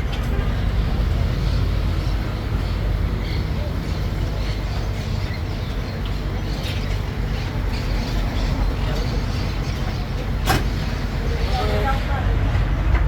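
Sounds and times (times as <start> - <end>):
road train engine rumbling: 0.0 - 13.0.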